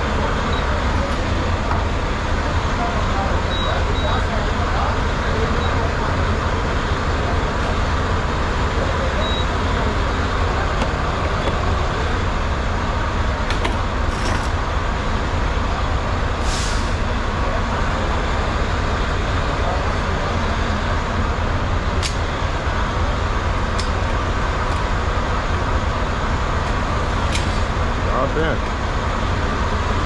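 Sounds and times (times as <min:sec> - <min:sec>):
diesel truck engine idling: 0:00.0 - 0:30.0
air hiss: 0:16.4 - 0:17.0.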